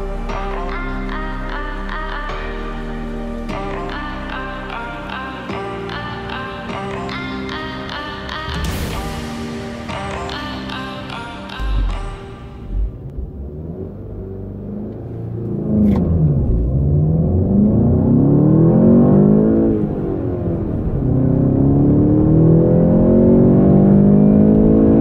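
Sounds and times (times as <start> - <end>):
car engine accelerating: 11.5 - 25.0.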